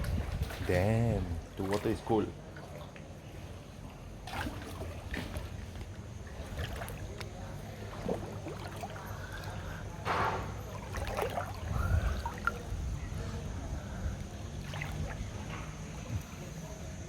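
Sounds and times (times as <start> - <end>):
steady low rumble: 0.0 - 1.6, 10.6 - 17.0
pool water sloshing and splashing: 0.0 - 17.0.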